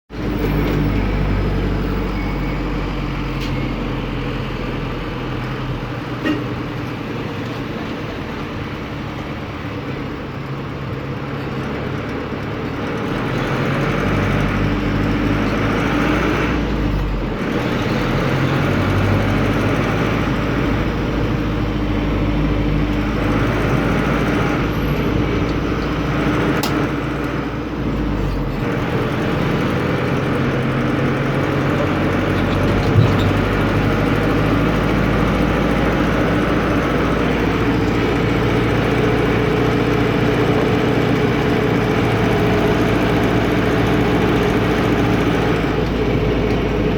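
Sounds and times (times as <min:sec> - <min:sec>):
diesel engine running: 0:00.1 - 0:46.9.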